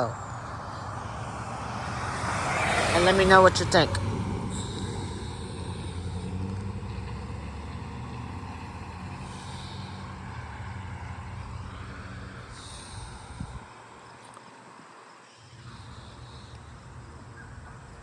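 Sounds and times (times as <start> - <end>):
vehicle engine humming: 0.0 - 13.7.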